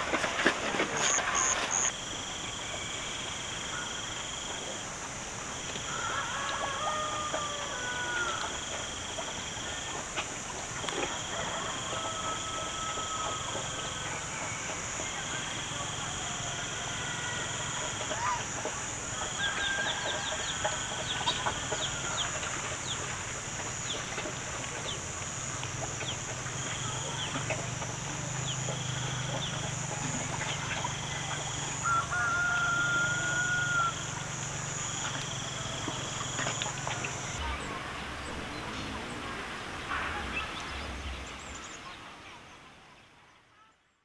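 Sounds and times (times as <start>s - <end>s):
chickens clucking: 0.0s - 1.9s, 10.9s - 42.0s
rooster crowing: 0.2s - 1.9s, 5.8s - 9.0s, 11.0s - 23.3s, 26.6s - 41.4s
steady high drone: 33.8s - 42.3s.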